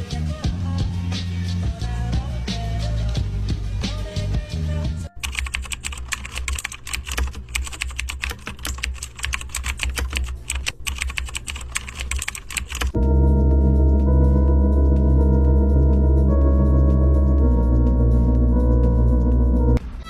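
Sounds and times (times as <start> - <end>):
rapid typing on keyboard: 5.1 - 13.0
brief music: 12.9 - 19.8
loud sustained humming tone: 13.0 - 19.8
low steady hum: 13.0 - 19.8.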